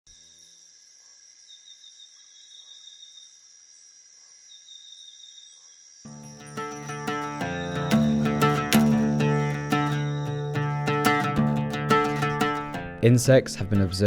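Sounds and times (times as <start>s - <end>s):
crickets chirping: 0.1s - 8.4s
plucked-string music: 6.1s - 14.0s.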